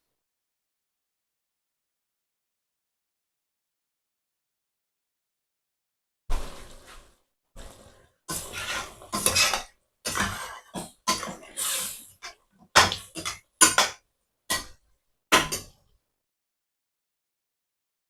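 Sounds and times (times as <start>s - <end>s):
utensils clattering against a pot: 8.3s - 15.8s.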